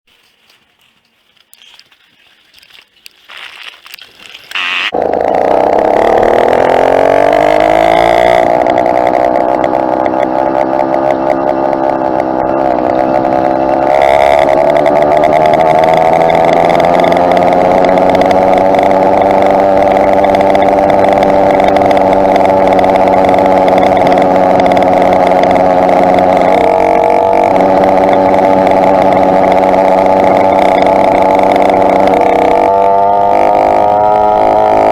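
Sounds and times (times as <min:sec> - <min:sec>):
two-stroke engine revving: 0:04.5 - 0:34.9.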